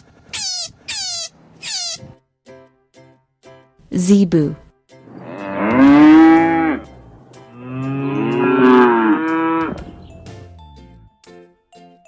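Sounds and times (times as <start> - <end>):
cattle mooing: 5.1 - 9.9.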